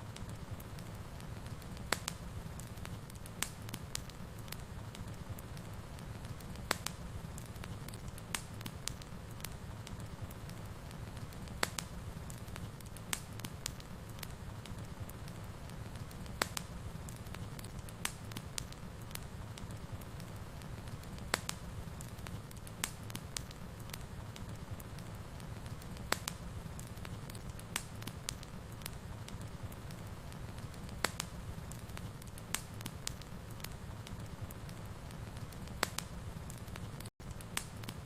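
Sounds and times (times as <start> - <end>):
low rumble of flames: 0.0 - 38.0
sharp fire pops: 0.0 - 38.0
wood fire crackling: 0.0 - 38.0.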